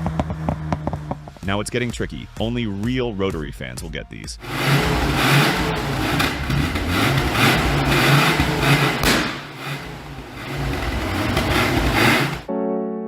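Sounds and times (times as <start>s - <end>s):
rotary engine revving: 4.4s - 12.5s.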